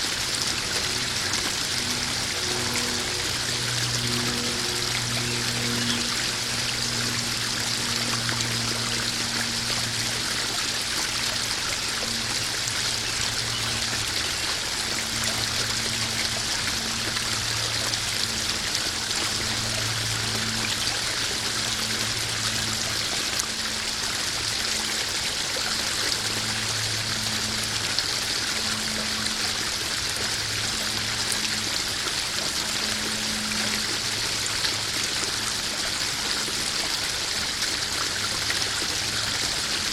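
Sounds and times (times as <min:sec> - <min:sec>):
low hum: 0:00.0 - 0:23.8
small waterfall splashing into pond: 0:00.0 - 0:39.9.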